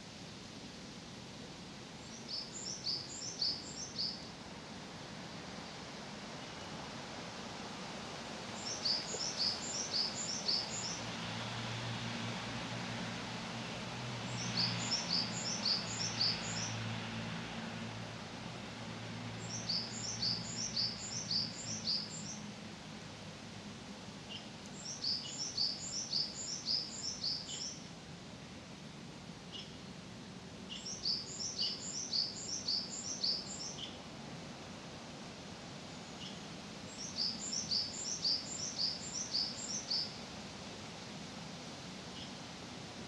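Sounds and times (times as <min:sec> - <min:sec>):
outdoor background noise: 0:00.0 - 0:43.0
songbird singing: 0:02.0 - 0:04.4, 0:08.5 - 0:11.4, 0:14.2 - 0:17.0, 0:19.4 - 0:22.5, 0:24.2 - 0:27.9, 0:29.5 - 0:29.9, 0:30.6 - 0:34.1, 0:35.9 - 0:40.2, 0:42.1 - 0:42.4.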